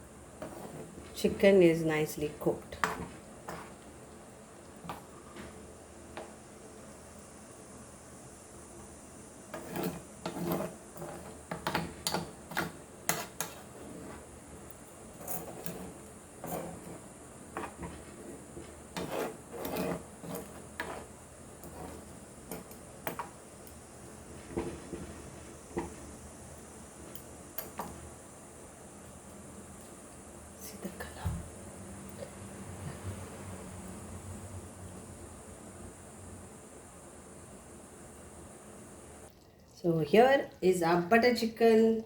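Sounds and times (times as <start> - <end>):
utensil scraping a cooking pot: 0.4 - 1.4, 2.7 - 3.9, 9.5 - 23.4.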